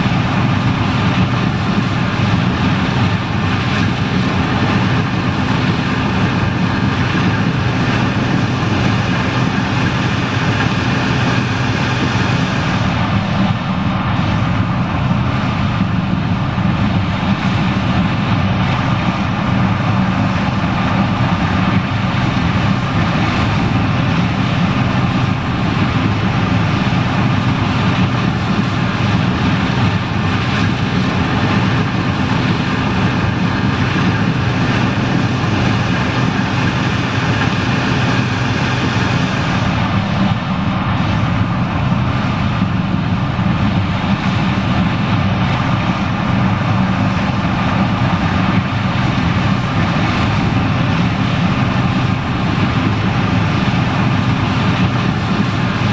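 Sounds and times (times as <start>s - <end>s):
diesel engine drone: 0.0s - 55.9s
threshing machinery rushing: 2.2s - 13.4s, 24.6s - 40.4s.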